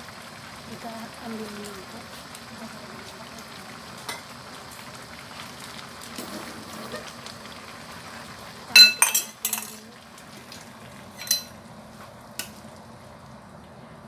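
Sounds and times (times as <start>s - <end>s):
curry bubbling: 0.0s - 13.9s
metal ladle clinking against wok: 8.8s - 9.8s, 11.2s - 11.5s.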